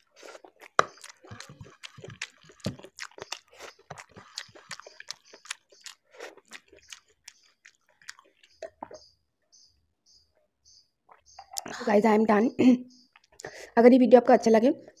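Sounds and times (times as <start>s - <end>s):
wet mouth clicks and smacks: 0.0s - 9.0s, 13.0s - 13.6s
close chewing of noodles: 0.0s - 9.1s, 13.0s - 13.6s.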